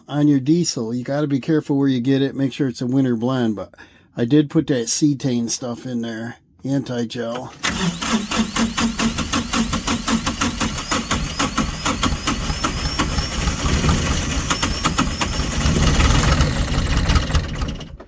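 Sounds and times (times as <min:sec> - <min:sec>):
tractor engine cranking: 0:07.4 - 0:18.0.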